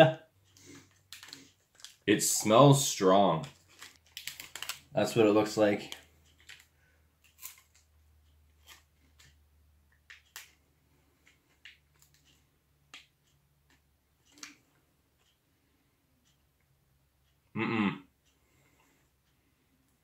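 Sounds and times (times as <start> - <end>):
biting and chewing chocolate bar: 0.6 - 2.1, 3.4 - 5.0, 5.8 - 7.9
wrapper crackling: 1.1 - 2.0, 3.4 - 5.0, 7.4 - 7.8.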